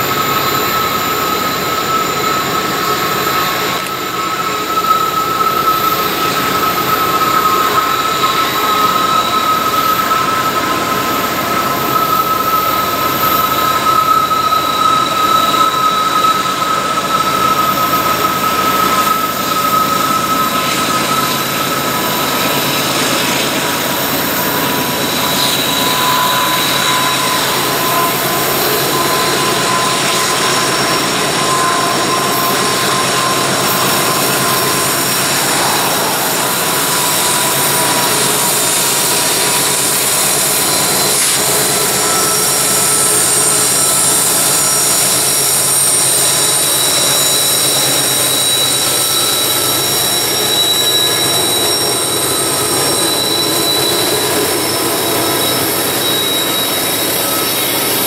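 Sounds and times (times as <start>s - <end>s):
freight train rolling rush: 0.0s - 58.0s
high whining tones: 0.0s - 58.0s.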